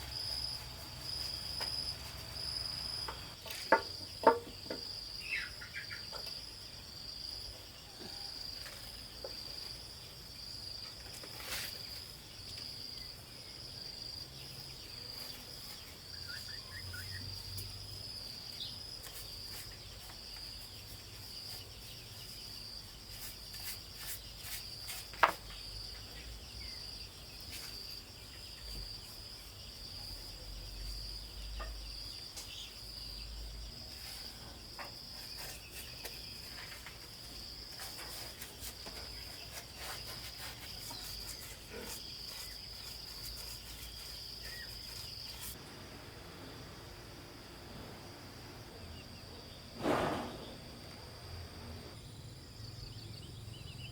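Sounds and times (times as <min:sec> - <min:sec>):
insects chirring: 0:00.0 - 0:53.9.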